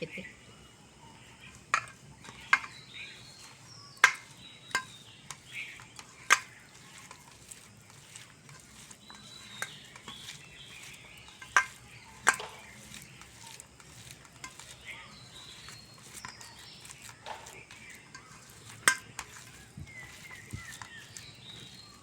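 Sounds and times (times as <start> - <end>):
hands mashing food: 1.3 - 22.0
taps against dish: 4.0 - 6.6, 11.4 - 13.1.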